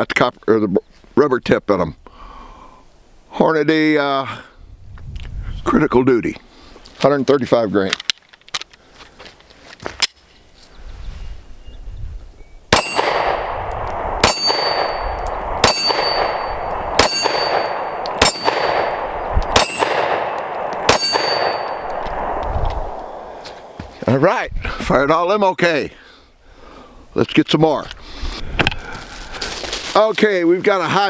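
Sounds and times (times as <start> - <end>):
pistol shots: 12.7 - 23.8
gunshot echo: 12.7 - 23.9
high metallic ring: 12.8 - 13.2, 14.2 - 20.1, 20.9 - 22.3.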